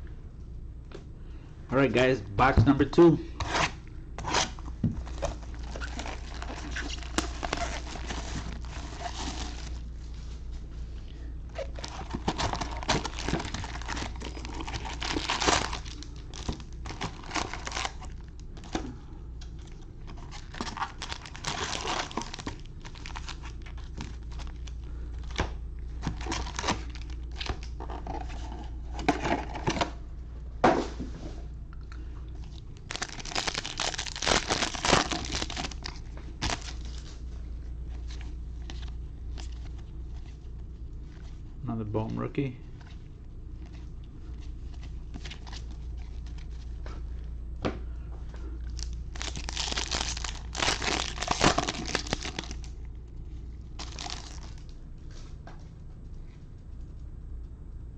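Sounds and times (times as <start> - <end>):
steady low hum: 0.0 - 57.9
plastic wrapping crinkling and tearing: 3.5 - 10.0, 11.5 - 18.8, 19.6 - 28.4, 32.4 - 40.4, 44.6 - 46.8, 48.6 - 52.8, 53.7 - 54.8.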